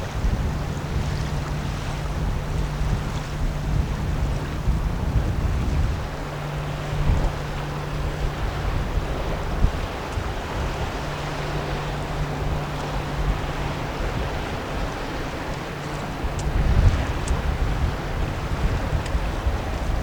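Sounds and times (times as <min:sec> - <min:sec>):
low boat engine drone: 0:00.0 - 0:20.0
wind buffeting the microphone: 0:00.0 - 0:20.0.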